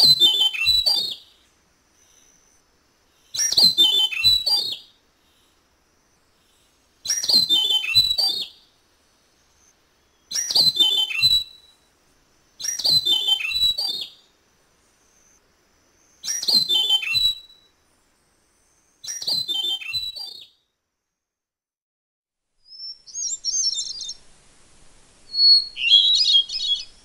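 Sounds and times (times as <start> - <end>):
bird singing whistled notes: 0.0 - 2.6, 3.3 - 5.0, 7.0 - 8.7, 9.5 - 11.9, 12.6 - 14.3, 16.0 - 20.7, 22.6 - 24.2, 25.2 - 27.0.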